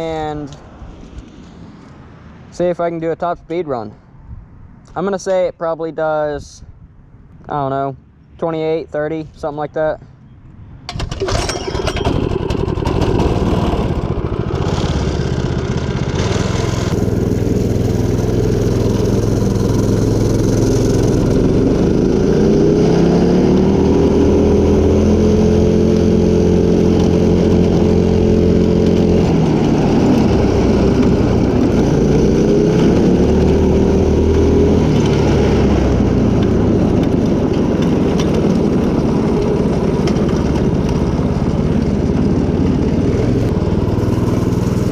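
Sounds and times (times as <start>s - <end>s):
small gas engine running hard: 10.9s - 44.9s.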